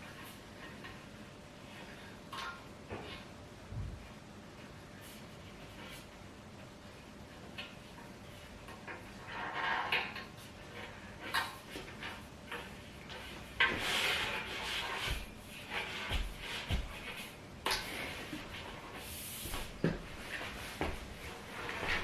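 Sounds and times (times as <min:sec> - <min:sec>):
furniture parts scraping: 0:08.4 - 0:22.0.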